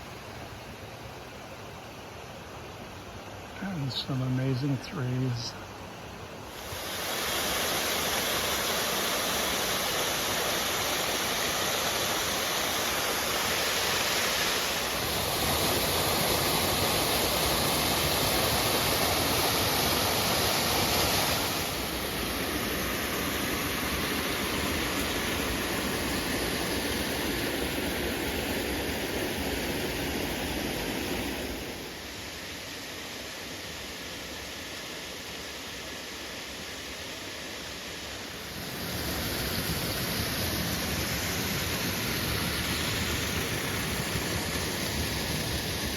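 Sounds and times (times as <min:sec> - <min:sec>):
water rushing over rocks: 0:06.4 - 0:26.8.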